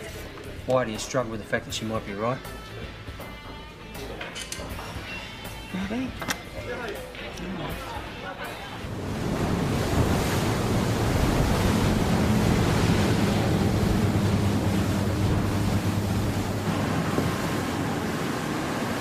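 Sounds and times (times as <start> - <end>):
motorboat engine running: 8.8 - 19.0
water rushing: 8.8 - 19.0
wind: 8.8 - 19.0.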